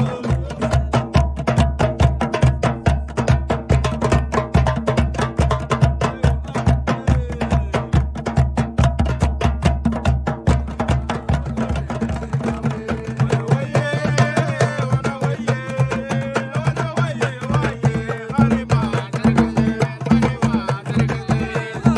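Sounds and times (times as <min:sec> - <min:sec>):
voices singing wavering melody: 0:00.0 - 0:01.0
hand drum beat: 0:00.0 - 0:21.9.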